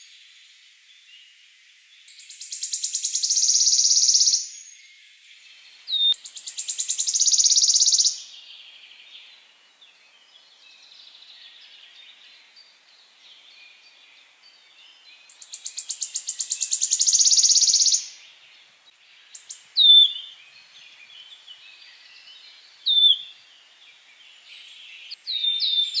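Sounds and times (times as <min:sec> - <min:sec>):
songbird trills: 0:00.0 - 0:26.0
soft twittering: 0:05.4 - 0:08.3, 0:15.2 - 0:18.4.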